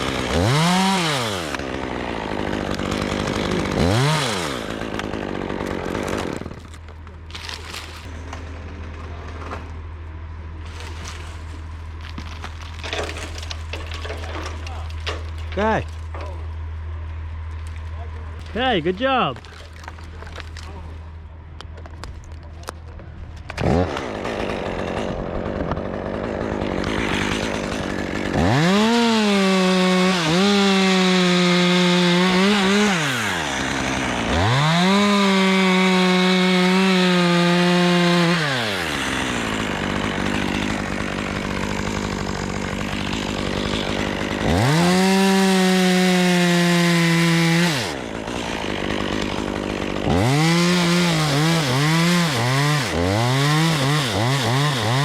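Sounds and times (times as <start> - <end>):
chainsaw starting and revving: 0.0 - 9.2, 23.5 - 55.0.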